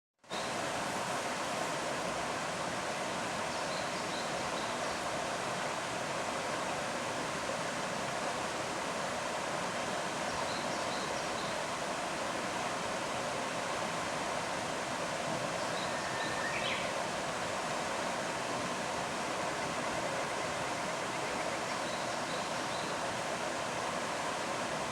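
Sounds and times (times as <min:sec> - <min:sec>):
stream water rushing: 0:00.3 - 0:24.9.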